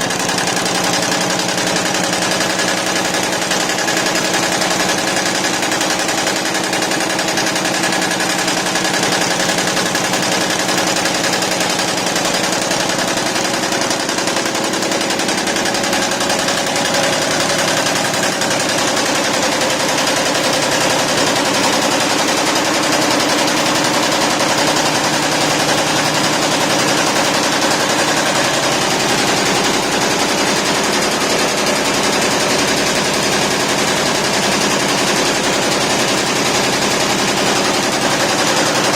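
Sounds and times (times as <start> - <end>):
embroidery machine stitching clatter: 0.0 - 38.9.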